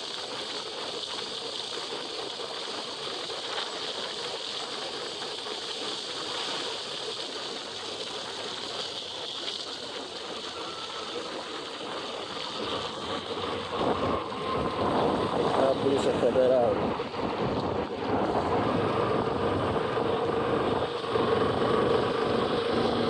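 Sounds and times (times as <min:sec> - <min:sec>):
wet road spray: 0:00.0 - 0:23.0
wind rushing on helmet microphone: 0:12.5 - 0:23.0.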